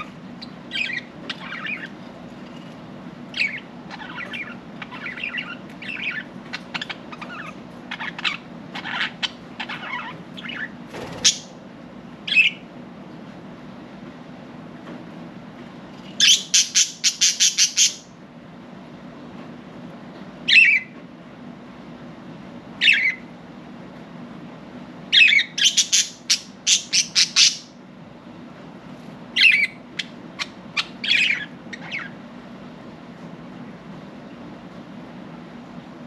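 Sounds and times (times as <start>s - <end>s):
budgerigars squawking and chirping: 0.0s - 2.0s, 3.3s - 11.5s, 12.3s - 12.6s, 16.2s - 18.1s, 22.8s - 23.2s, 25.1s - 27.8s, 29.4s - 32.2s
steady low hum: 0.0s - 36.0s.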